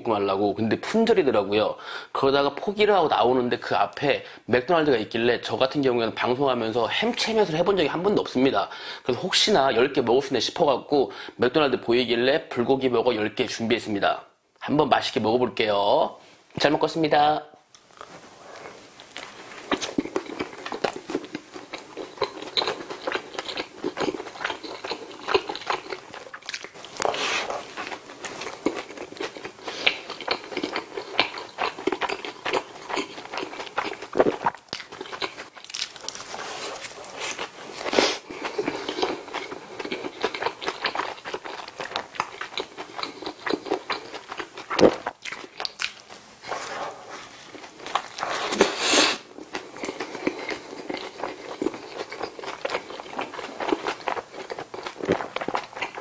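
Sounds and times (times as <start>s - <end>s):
person chewing a burger: 17.8s - 56.0s.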